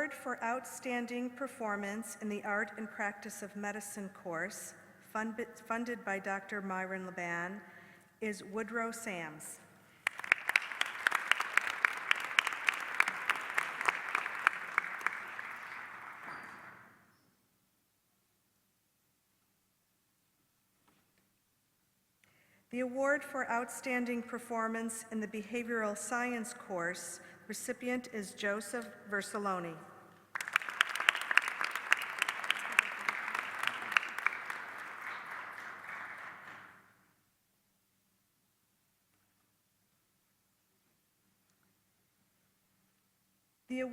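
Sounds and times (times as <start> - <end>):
audience applauding: 10.0 - 16.7, 30.3 - 36.8.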